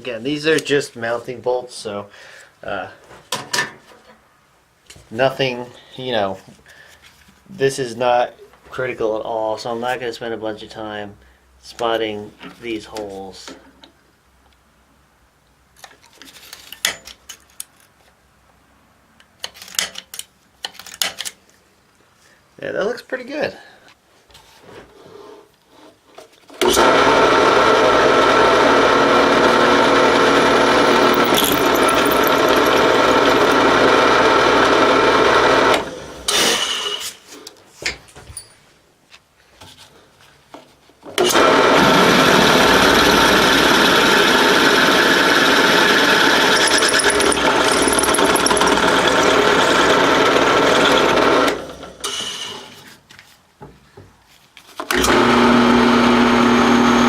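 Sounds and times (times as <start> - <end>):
drill press motor running: 26.6 - 36.4, 41.2 - 51.9.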